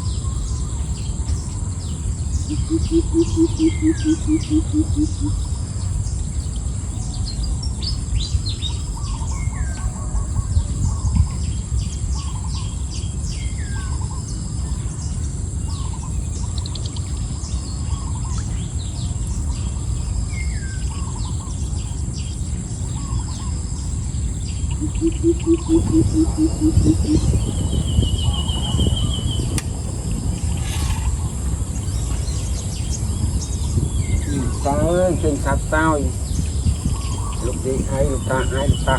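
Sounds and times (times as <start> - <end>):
low pulsed bird call: 0.0 - 14.9, 24.6 - 38.9
birds chirping and whistling: 0.0 - 38.9
insect drone: 0.0 - 38.9.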